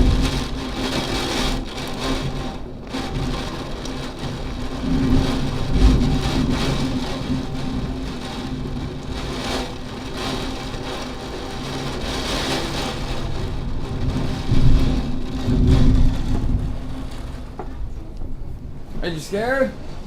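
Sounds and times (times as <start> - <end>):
low thunder rumbling: 0.0 - 19.0
hard rain: 0.0 - 20.0.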